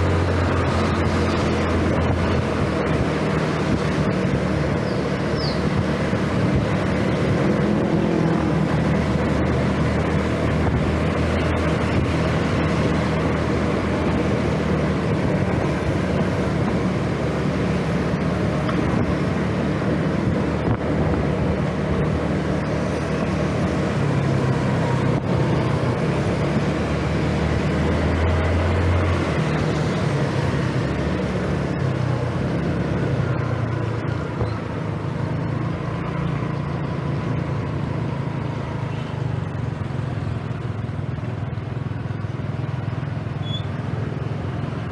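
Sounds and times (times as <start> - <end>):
wind and road noise: 0.0 - 44.9.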